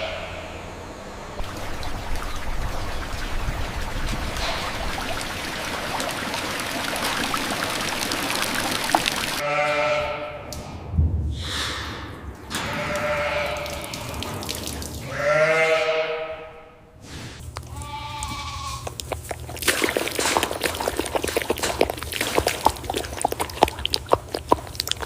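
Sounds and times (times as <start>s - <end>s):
steady low hum: 0.0s - 9.4s, 10.0s - 25.0s
goats bleating: 9.4s - 10.5s, 12.5s - 14.2s, 15.0s - 16.6s, 17.6s - 19.0s.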